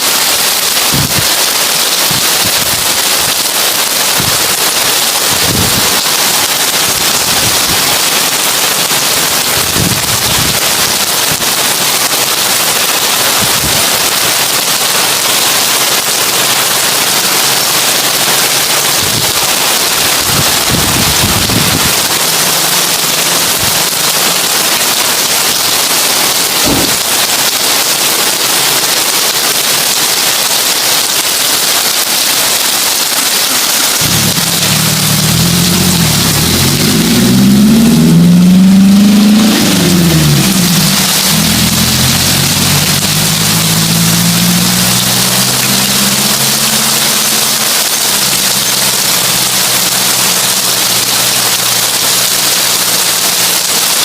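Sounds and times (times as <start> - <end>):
heavy rain on a tin roof: 0.0 - 54.0.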